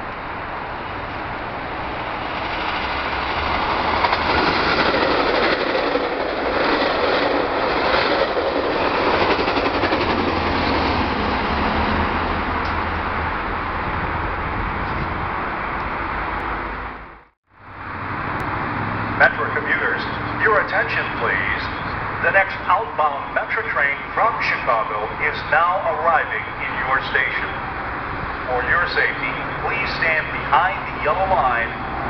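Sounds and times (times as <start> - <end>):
train wheels rumbling and clacking: 0.1 - 17.0.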